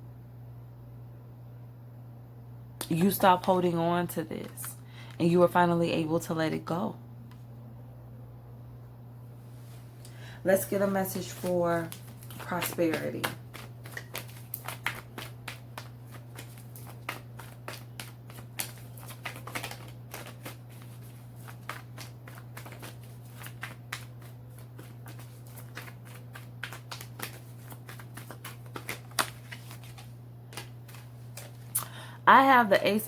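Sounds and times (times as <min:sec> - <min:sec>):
low electrical hum: 0:00.0 - 0:33.0
cards being shuffled: 0:10.6 - 0:31.8.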